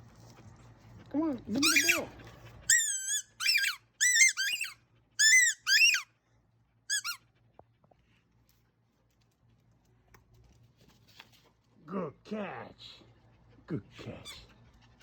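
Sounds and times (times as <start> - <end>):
squeaky rubber toy squeaks: 1.5 - 2.1, 2.7 - 6.1, 6.9 - 7.2.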